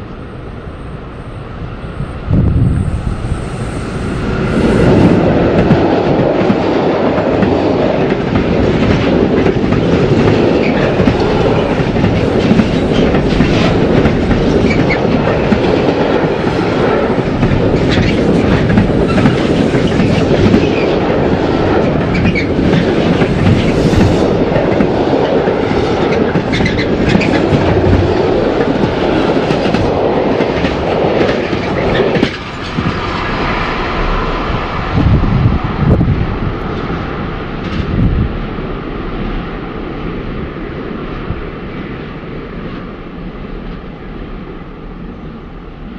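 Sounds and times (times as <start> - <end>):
train wheels clattering on rails: 4.2 - 38.4.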